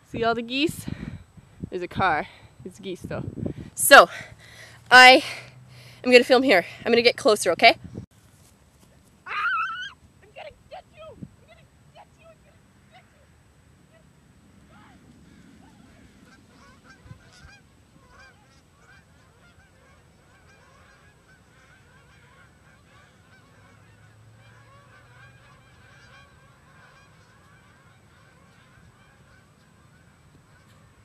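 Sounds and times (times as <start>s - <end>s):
geese honking: 14.7s - 31.0s.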